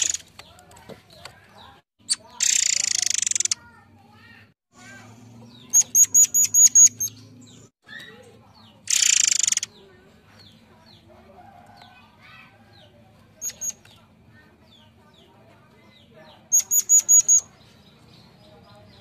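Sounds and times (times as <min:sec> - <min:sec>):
faint bird chirps: 0:01.2 - 0:12.6, 0:13.4 - 0:14.1, 0:16.2 - 0:19.0
songbird whistling: 0:05.6 - 0:07.2, 0:16.5 - 0:17.6
harsh rasping bird call: 0:08.9 - 0:09.8.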